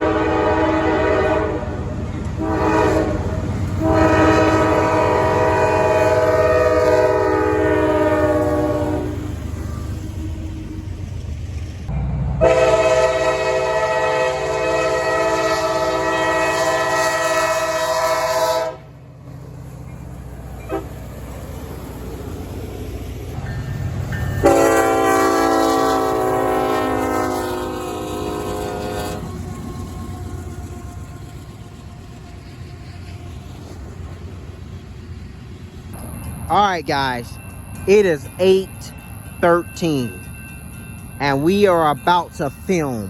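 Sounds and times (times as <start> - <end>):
locomotive air horn blasts: 0.0 - 1.8, 2.4 - 9.2, 12.4 - 18.9, 20.6 - 21.0, 24.4 - 29.5
rumble of moving train: 0.0 - 43.0.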